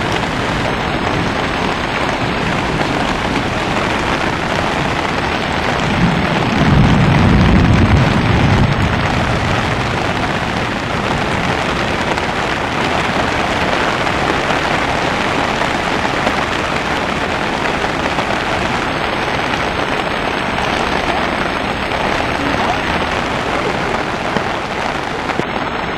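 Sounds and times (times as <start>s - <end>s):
rushing floodwater: 0.0s - 25.9s
torrential rain: 0.0s - 25.9s
low rumble: 5.8s - 11.8s.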